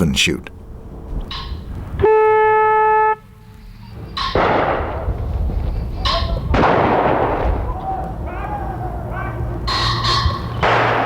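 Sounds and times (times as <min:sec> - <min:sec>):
horn blast: 0:01.9 - 0:03.6
shotgun shots echoing: 0:04.3 - 0:05.2, 0:06.5 - 0:07.7, 0:10.6 - 0:11.0.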